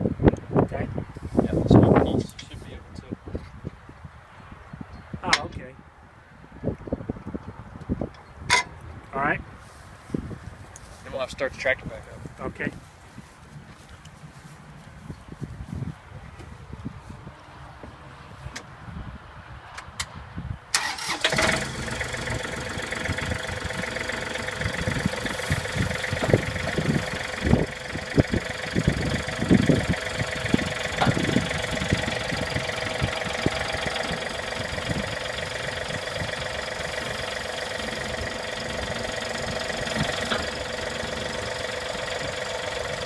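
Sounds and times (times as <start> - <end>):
tractor diesel engine idling: 20.8 - 43.0.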